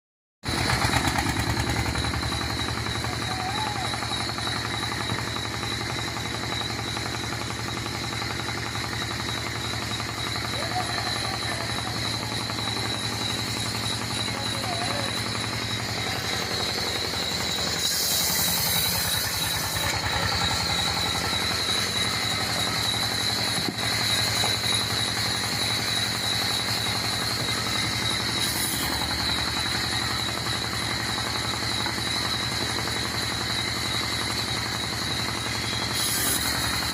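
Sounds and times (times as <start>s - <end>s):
wood saw machine running: 0.4s - 36.9s.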